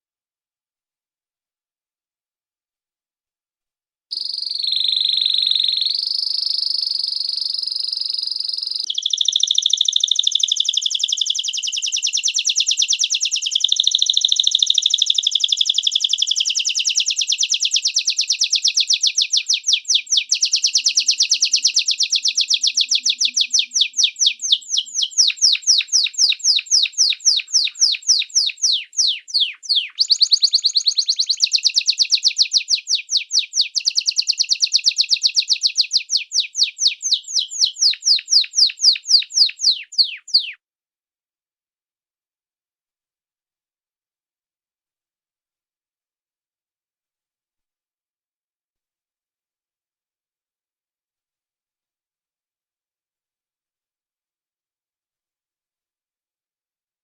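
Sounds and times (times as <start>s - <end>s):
songbird singing trills: 4.1s - 40.6s.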